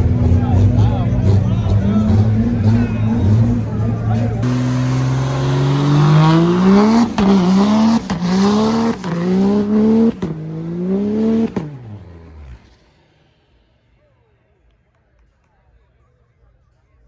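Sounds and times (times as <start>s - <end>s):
truck engine accelerating through gears: 0.0s - 13.4s.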